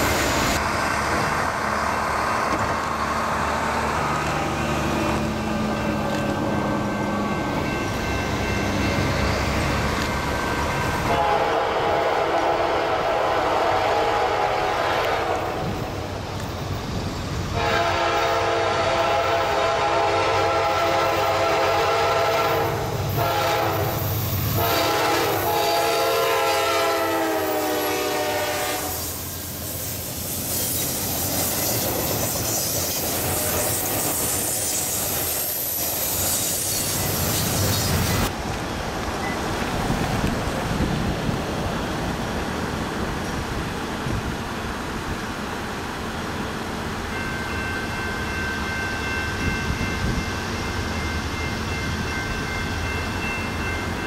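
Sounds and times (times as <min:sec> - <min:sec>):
distant train rumbling: 0:00.0 - 0:54.0
locomotive air horn blasts: 0:11.0 - 0:15.8, 0:17.5 - 0:24.0, 0:24.6 - 0:29.1.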